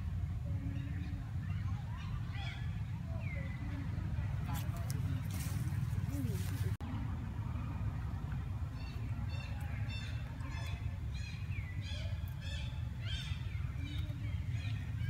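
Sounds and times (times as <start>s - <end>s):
steady low rumble: 0.0s - 15.0s
bird calling in arching notes: 8.6s - 15.0s.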